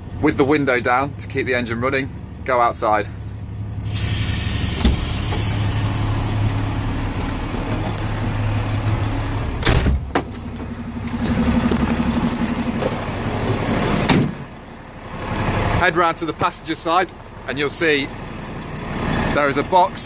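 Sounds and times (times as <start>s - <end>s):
van engine running: 0.0s - 20.0s
door banging shut: 4.8s - 5.4s, 9.6s - 10.4s, 14.0s - 14.4s.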